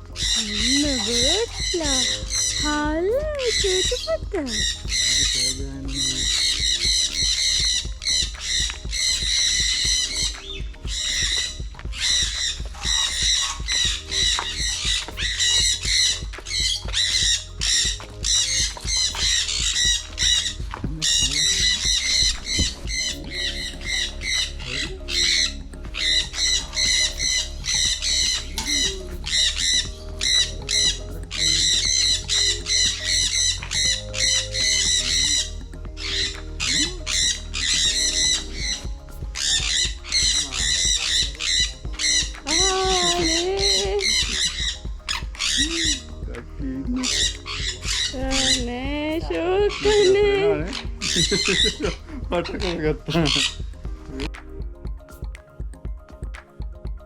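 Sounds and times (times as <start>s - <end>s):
flock of birds squawking: 0.0s - 54.3s
background music with held chords: 0.0s - 57.0s.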